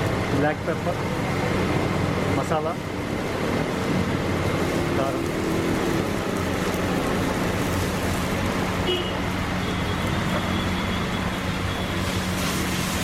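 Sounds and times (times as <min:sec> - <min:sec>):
roadside traffic: 0:00.0 - 0:13.0.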